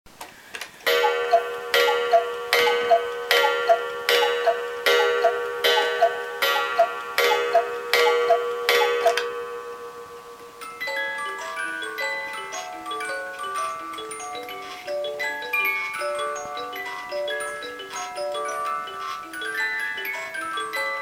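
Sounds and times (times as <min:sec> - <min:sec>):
two-note cuckoo call: 0:00.9 - 0:09.4
clock striking: 0:00.9 - 0:09.9.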